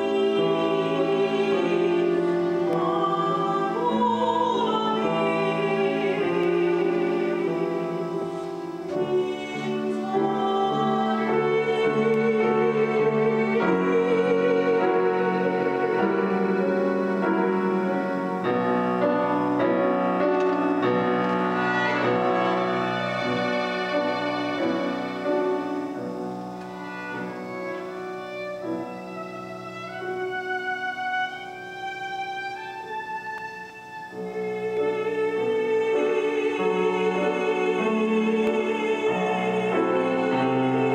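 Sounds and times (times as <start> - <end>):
woman singing operatically: 0.0 - 16.7, 34.9 - 40.9
bowed string melody: 0.0 - 40.9
piano accompaniment: 0.0 - 40.9.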